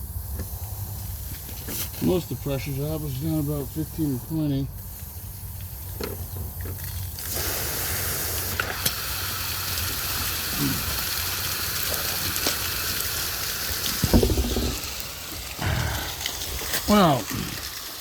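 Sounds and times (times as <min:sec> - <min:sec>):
water spraying from broken pipe: 0:06.8 - 0:18.0
low bumps: 0:14.0 - 0:14.9, 0:15.6 - 0:17.5.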